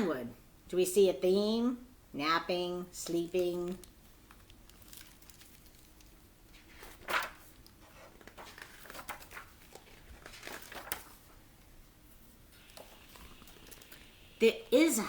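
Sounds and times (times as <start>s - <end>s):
book pages rustling: 3.0s - 11.5s.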